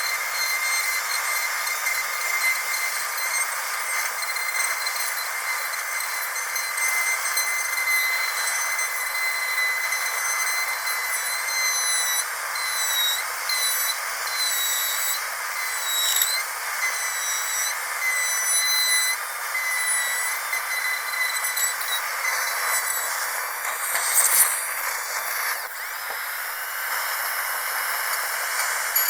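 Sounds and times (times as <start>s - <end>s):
dentist's drill whining: 0.0s - 29.0s.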